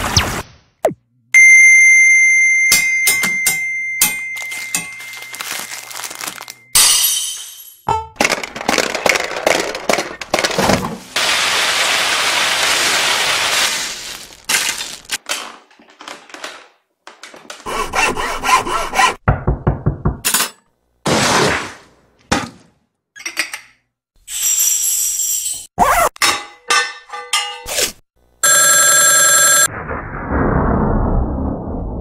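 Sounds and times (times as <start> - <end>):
dense cracking and knocking: 8.2 - 11.1.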